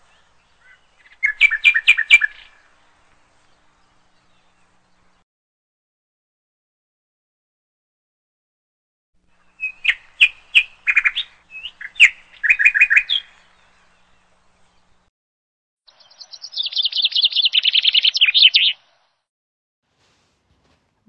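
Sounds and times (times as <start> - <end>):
songbird chirps and trill: 0.0 - 5.2, 9.2 - 15.1, 15.9 - 19.3.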